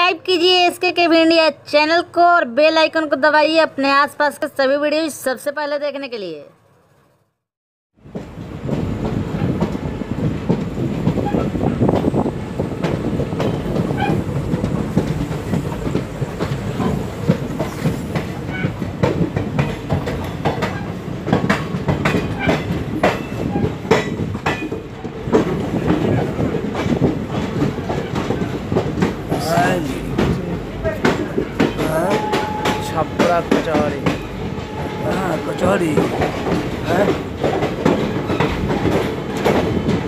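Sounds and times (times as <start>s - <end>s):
train rumbling on rails: 8.0s - 40.0s
wheels clicking over rail joints: 8.1s - 34.8s.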